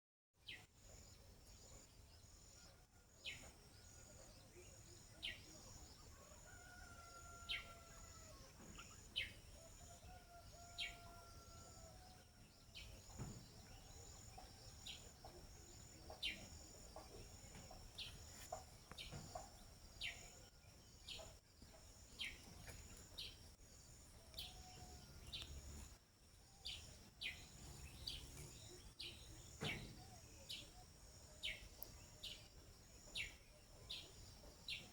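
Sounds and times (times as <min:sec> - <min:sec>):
bird chirping: 0:00.4 - 0:34.9
distant rooster crowing: 0:06.1 - 0:08.8, 0:09.6 - 0:12.4.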